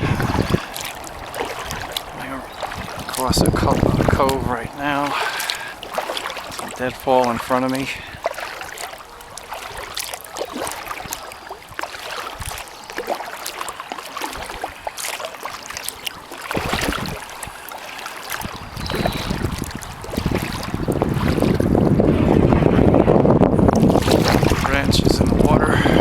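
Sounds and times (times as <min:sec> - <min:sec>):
wind buffeting microphone: 0:00.0 - 0:13.4, 0:14.2 - 0:26.0
water dripping off paddle: 0:00.0 - 0:21.9, 0:23.8 - 0:26.0
paddle splashes: 0:00.0 - 0:26.0.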